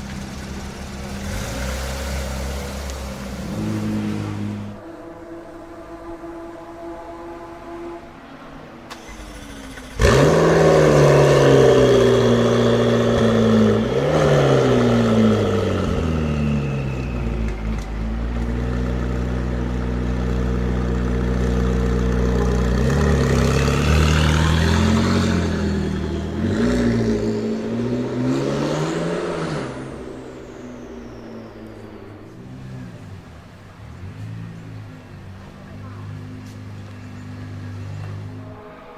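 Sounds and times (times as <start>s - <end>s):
sports car engine revving: 0.0s - 4.8s, 9.0s - 17.4s, 18.3s - 35.1s.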